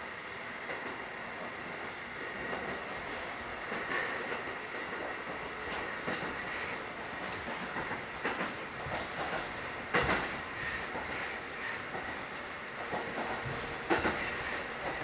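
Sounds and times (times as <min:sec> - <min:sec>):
train interior rumble: 0:00.0 - 0:15.0
wheels knocking over rail joints: 0:07.3 - 0:11.4.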